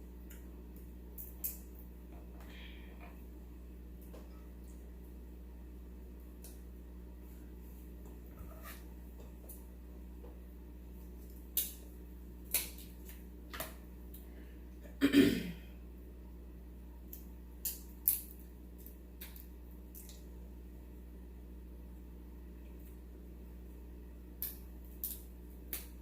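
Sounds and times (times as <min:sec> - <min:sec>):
shellfish shells cracking: 0:17.1 - 0:20.2, 0:24.4 - 0:26.0.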